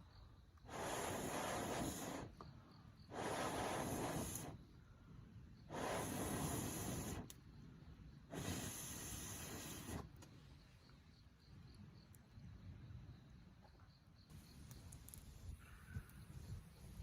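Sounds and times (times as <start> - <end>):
hissing rushes of air: 0.6 - 2.4, 3.1 - 4.6, 5.6 - 7.4, 8.2 - 10.2.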